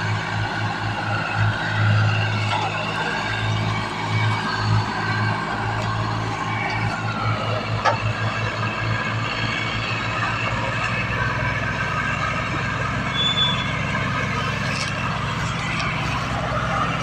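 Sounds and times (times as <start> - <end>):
tractor diesel engine running: 0.0 - 17.0
short high whistle-like tone: 13.1 - 13.7.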